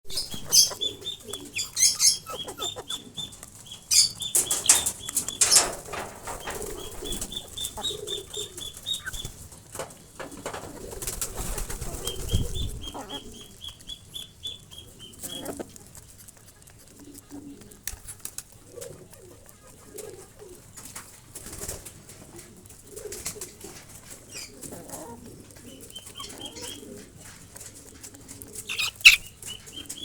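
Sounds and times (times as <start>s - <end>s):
wings flapping: 0.1s - 13.5s, 26.1s - 30.0s
birds pecking clicks: 0.2s - 12.3s, 13.2s - 20.2s, 25.6s - 30.0s.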